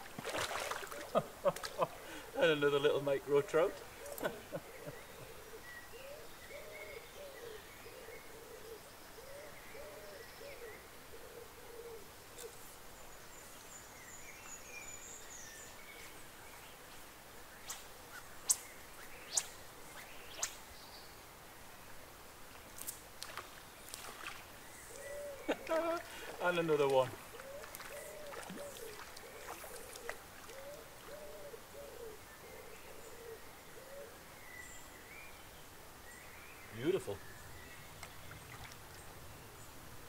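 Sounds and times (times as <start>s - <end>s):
faint high birdsong: 0.0s - 22.0s, 22.7s - 40.0s
bird low hooting calls: 3.3s - 12.6s, 24.7s - 34.7s.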